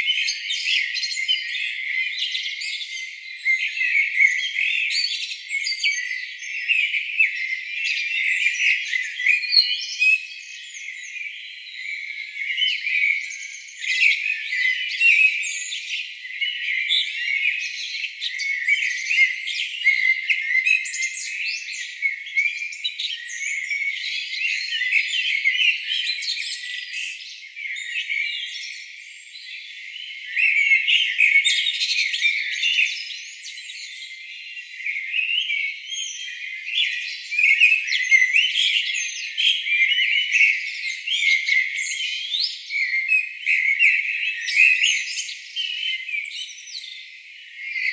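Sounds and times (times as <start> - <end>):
birds chirping and trilling: 29.4 - 47.9.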